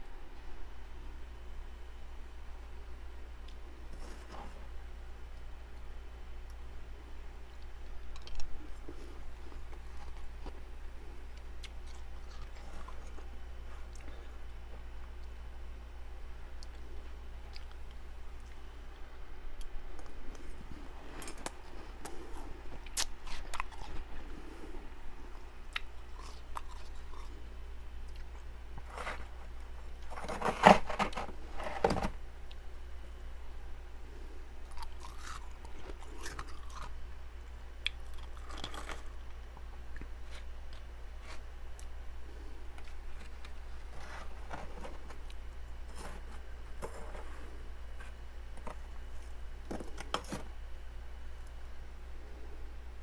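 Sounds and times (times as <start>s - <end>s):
steady low hum: 0.0s - 53.0s
person crunching frost: 20.3s - 24.4s, 25.8s - 27.4s, 28.1s - 31.9s, 34.7s - 36.9s, 37.9s - 50.5s
frost being scraped: 28.8s - 31.9s.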